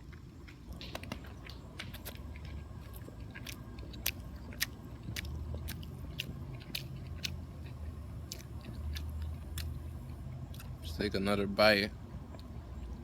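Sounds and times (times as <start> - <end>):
person chewing a sandwich: 0.0 - 11.0, 12.2 - 13.0
low steady hum: 0.0 - 13.0
sharp mouth clicks: 0.5 - 10.8.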